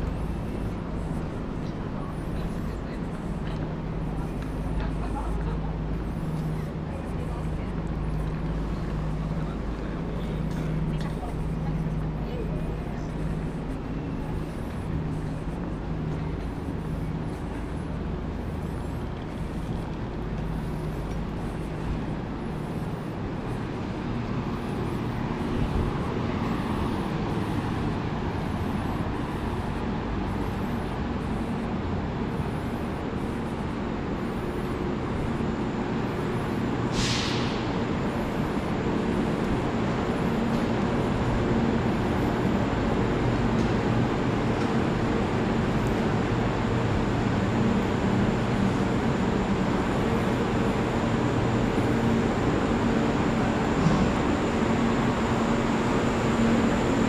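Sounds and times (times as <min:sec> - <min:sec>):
standing train humming: 0:00.0 - 0:57.0
short air hiss: 0:36.9 - 0:37.7.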